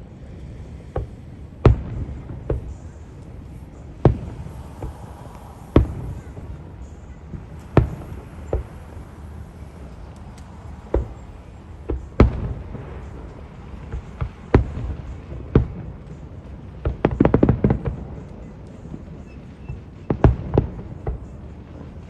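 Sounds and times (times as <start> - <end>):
fireworks bangs: 0.6 - 22.0
rapid firework pops: 4.0 - 6.5, 7.4 - 9.1, 9.7 - 22.0.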